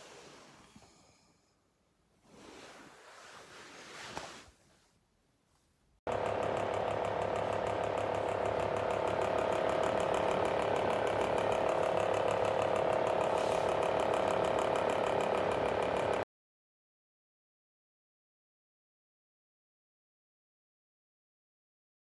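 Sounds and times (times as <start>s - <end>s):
fan heater whirring and rattling: 6.1s - 16.2s.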